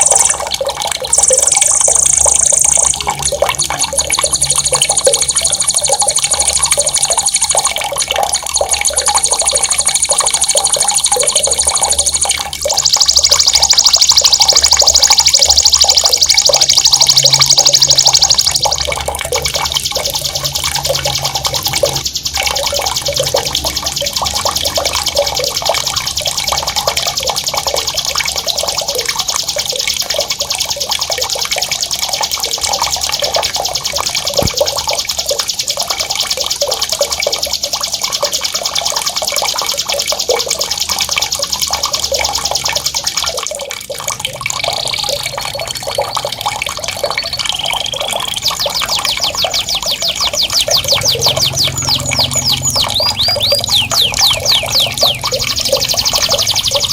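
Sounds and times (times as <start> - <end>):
songbird rolling trill: 0.0 - 18.7, 47.8 - 56.9
bubbling running water: 0.0 - 56.9.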